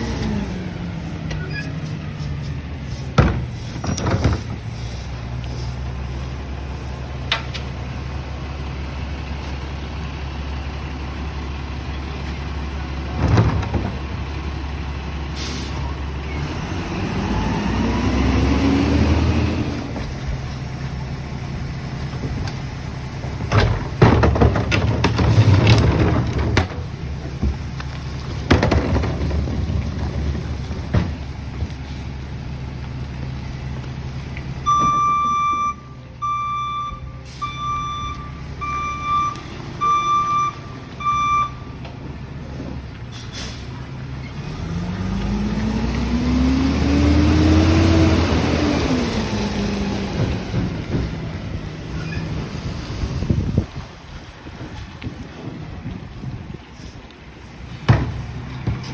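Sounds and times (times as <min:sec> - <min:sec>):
diesel engine revving: 0:00.0 - 0:58.9
air brake hisses: 0:15.4 - 0:15.9, 0:43.1 - 0:43.7
clatter: 0:22.0 - 0:31.8
backup alarm beeping: 0:34.6 - 0:41.7.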